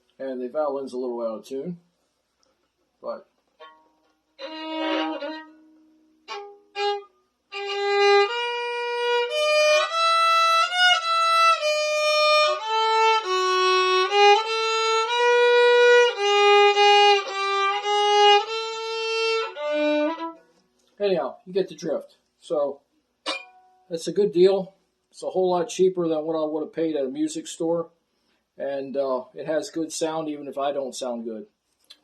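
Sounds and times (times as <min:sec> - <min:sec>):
violin bowed melody: 0:03.6 - 0:20.4.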